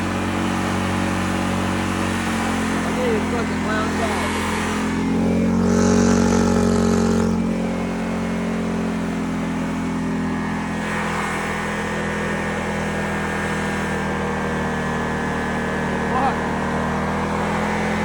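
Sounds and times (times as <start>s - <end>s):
lawnmower engine running: 0.0s - 18.0s.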